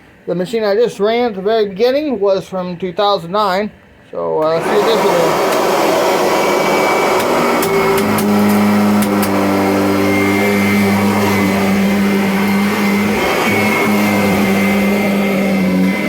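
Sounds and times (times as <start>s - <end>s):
vacuum cleaner motor hum: 4.4s - 16.0s.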